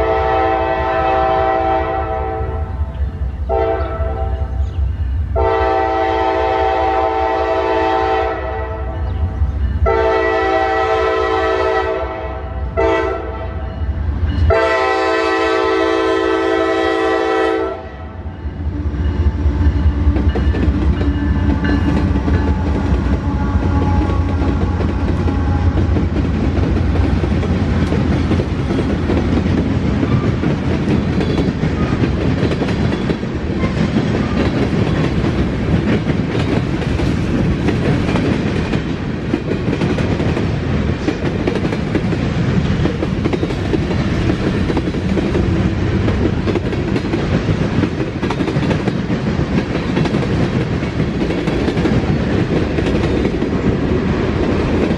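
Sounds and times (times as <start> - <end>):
train horn chord: 0.0 - 2.8, 3.4 - 4.6, 5.3 - 9.1, 9.8 - 20.2, 21.1 - 26.1
diesel locomotive drone: 0.0 - 54.9
train wheels rumbling on rails: 0.0 - 54.9.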